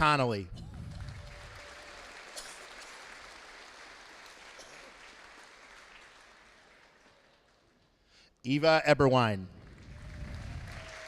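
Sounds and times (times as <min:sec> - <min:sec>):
audience applause: 0:00.7 - 0:07.9, 0:09.6 - 0:11.0.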